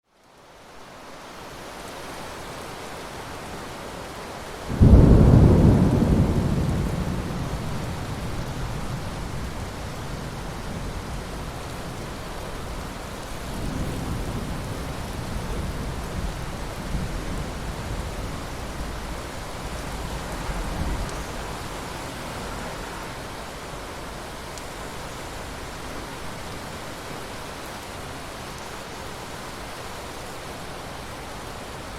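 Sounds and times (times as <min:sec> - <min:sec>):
steady rain falling: 0:00.0 - 0:31.9
thunder clap and rumble: 0:04.7 - 0:21.7.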